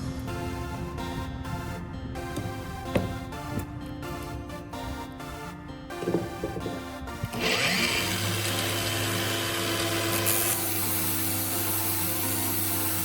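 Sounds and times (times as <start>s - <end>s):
background music: 0.0s - 13.0s
power tool motor whine: 6.4s - 13.0s.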